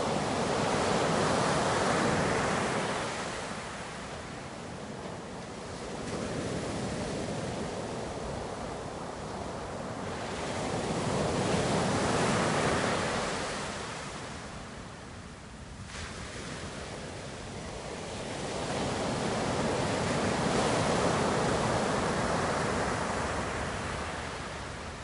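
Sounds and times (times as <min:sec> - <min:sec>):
ocean waves breaking: 0:00.0 - 0:14.5.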